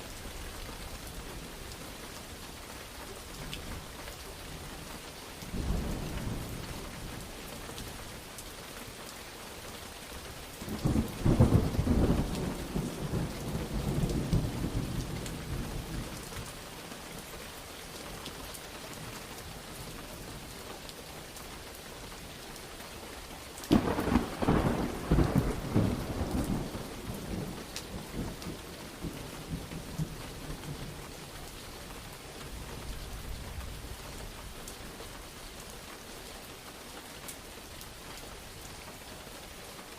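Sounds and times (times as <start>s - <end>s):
steady rain falling: 0.0s - 39.9s
rolling thunder: 23.7s - 30.8s.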